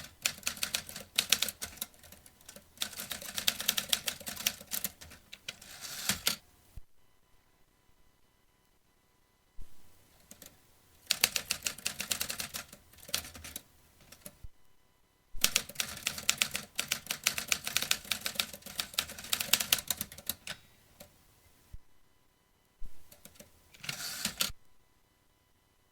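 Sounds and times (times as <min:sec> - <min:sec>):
typewriter keystrokes: 0:00.0 - 0:06.4, 0:10.2 - 0:14.4, 0:15.4 - 0:21.1, 0:23.1 - 0:24.5.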